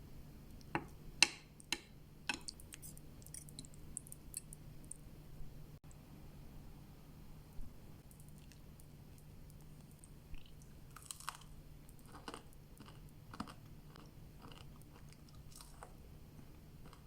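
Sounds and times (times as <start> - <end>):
person chewing crunchy food: 8.1 - 17.0.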